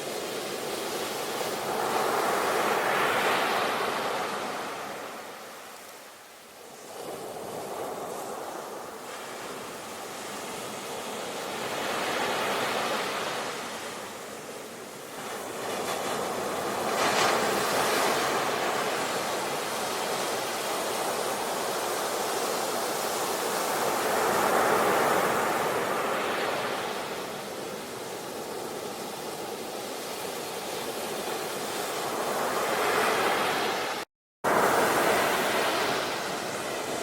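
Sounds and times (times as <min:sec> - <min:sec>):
ocean waves breaking: 0:15.1 - 0:37.0.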